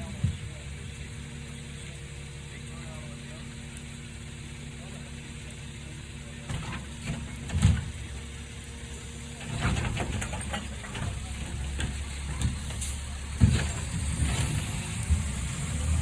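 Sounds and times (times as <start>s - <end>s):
garbage truck engine running: 0.0s - 16.0s
clatter: 9.4s - 15.4s.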